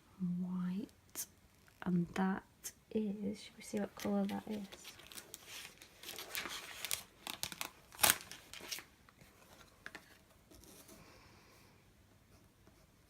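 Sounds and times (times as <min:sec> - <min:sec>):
plastic packaging crackling: 0:03.7 - 0:09.0.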